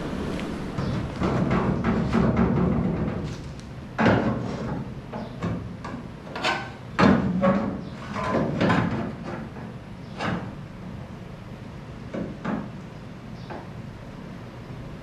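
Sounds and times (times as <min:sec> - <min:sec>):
metal plate knocks and clunks: 0:00.7 - 0:03.4.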